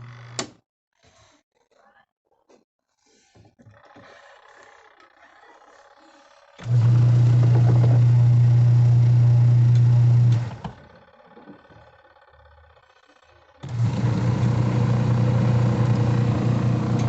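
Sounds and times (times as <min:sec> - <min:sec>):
washing machine motor humming: 0:06.6 - 0:17.0.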